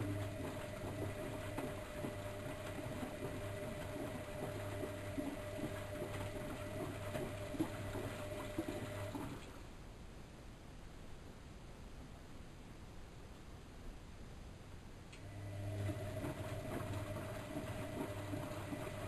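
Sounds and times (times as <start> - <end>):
water splashing in washing machine: 0.0 - 9.7, 15.2 - 19.0
washing machine hum: 0.0 - 9.8, 15.1 - 19.0.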